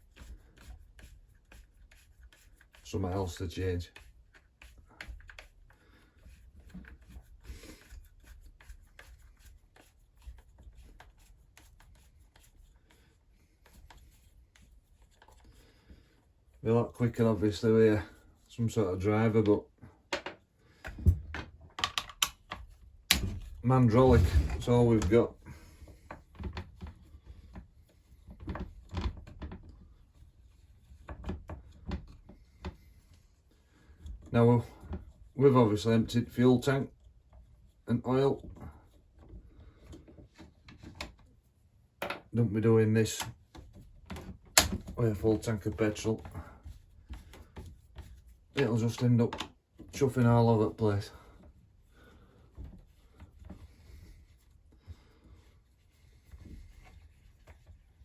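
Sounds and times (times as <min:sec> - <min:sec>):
hand tool knocking and clicking: 0:21.8 - 0:23.4.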